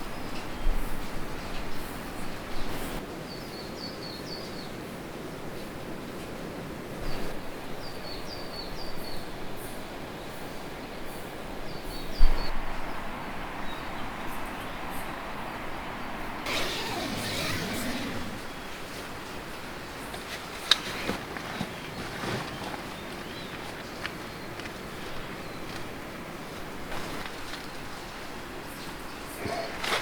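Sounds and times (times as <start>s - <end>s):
steady outdoor noise: 12.5s - 18.7s.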